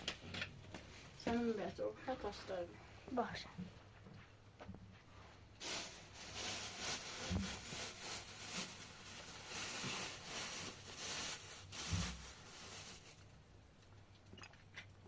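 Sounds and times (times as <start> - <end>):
rustling and rubbing: 5.0 - 13.3.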